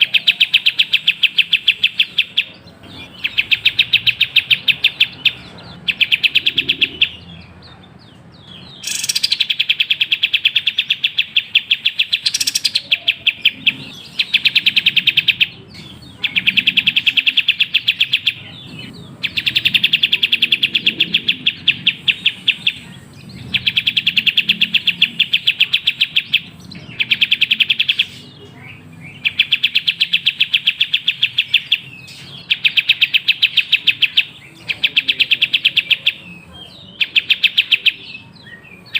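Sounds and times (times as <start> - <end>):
bird singing rapid trills: 0.0 - 38.9.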